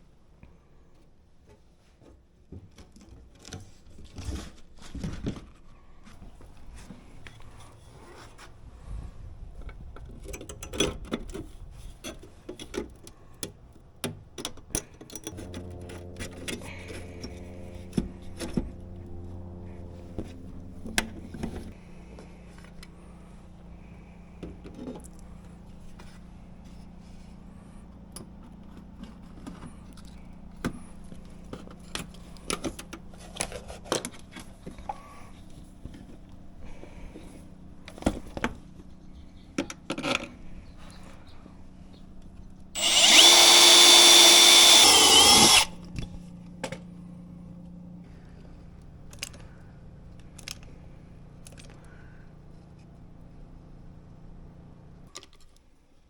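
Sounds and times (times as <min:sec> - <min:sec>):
steady low hum: 0:15.2 - 0:28.0
tools clicking and scraping: 0:42.8 - 0:45.8.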